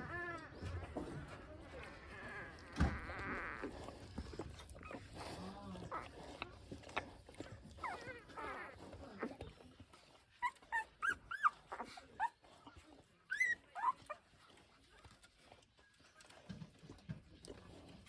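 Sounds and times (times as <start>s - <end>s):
puppies whimpering: 0.0s - 6.4s, 7.7s - 9.4s, 10.0s - 14.3s.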